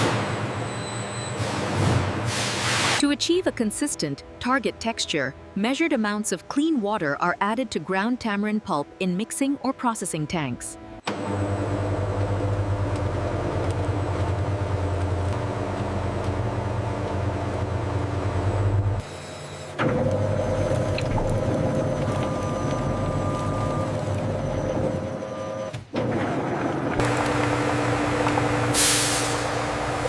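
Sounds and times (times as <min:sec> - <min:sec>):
machinery humming: 0:11.0 - 0:25.7, 0:26.9 - 0:30.0.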